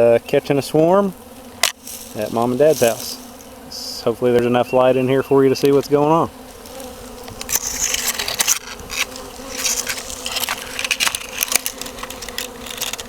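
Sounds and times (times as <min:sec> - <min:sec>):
bee swarm buzzing: 0:00.0 - 0:13.0
short clicks and crackles: 0:07.2 - 0:13.0.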